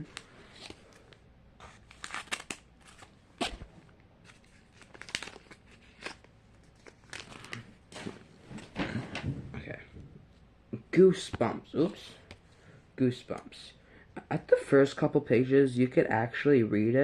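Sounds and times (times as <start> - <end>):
plastic packaging crinkling: 1.8 - 3.6, 4.2 - 8.0.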